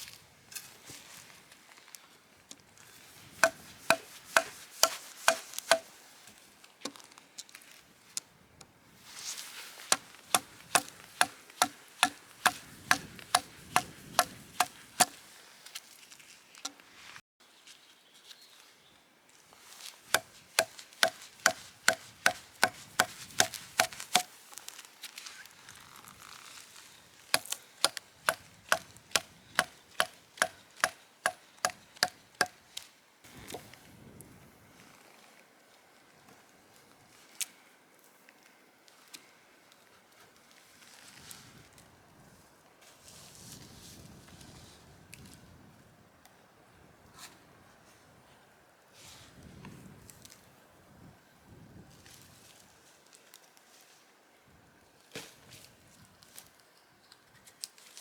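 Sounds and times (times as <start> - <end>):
wood knocking: 3.4 - 5.8, 10.4 - 15.1, 20.2 - 24.3.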